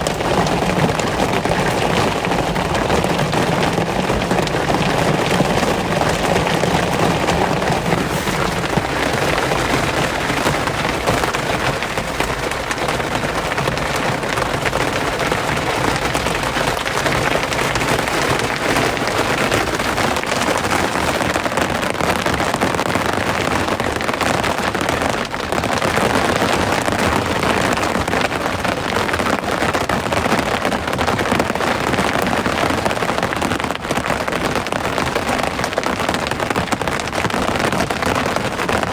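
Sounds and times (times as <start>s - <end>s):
rain falling steadily: 0.0s - 38.9s.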